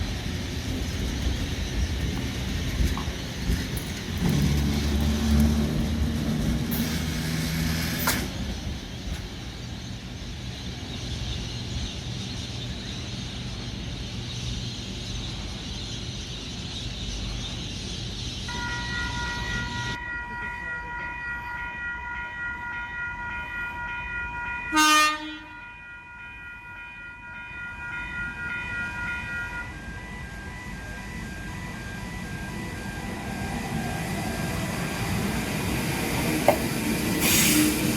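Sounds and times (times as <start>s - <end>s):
train rumbling on rails: 0.0s - 37.9s
train horn blast: 24.7s - 25.6s.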